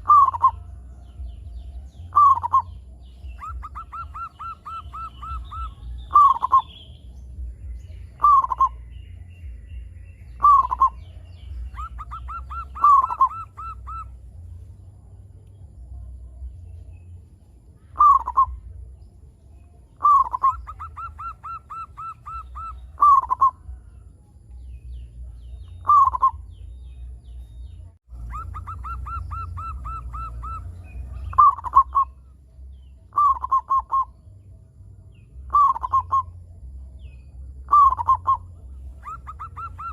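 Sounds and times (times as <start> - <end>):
dove cooing: 0.0 - 1.4, 2.1 - 6.8, 8.1 - 8.8, 10.4 - 14.5, 18.0 - 18.7, 20.0 - 23.8, 25.8 - 26.5, 28.1 - 32.3, 33.1 - 34.2, 35.5 - 36.4, 37.7 - 39.9.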